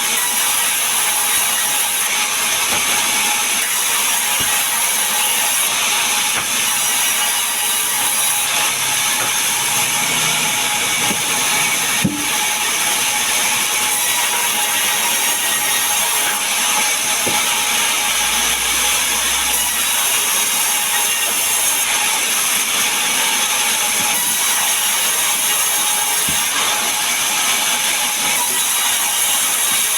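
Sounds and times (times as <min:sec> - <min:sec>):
power saw cutting wood: 0:00.0 - 0:29.9
knock: 0:12.0 - 0:12.4.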